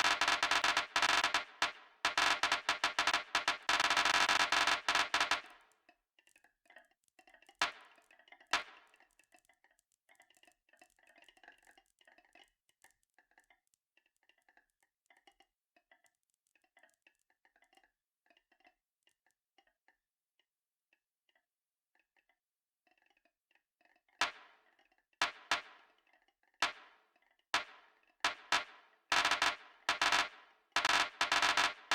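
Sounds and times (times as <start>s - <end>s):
sharp marble clacks: 0.0s - 5.7s, 7.6s - 9.3s, 24.2s - 24.5s, 25.2s - 26.0s, 26.6s - 27.0s, 27.6s - 31.9s
marbles rolling and rattling: 28.3s - 31.9s.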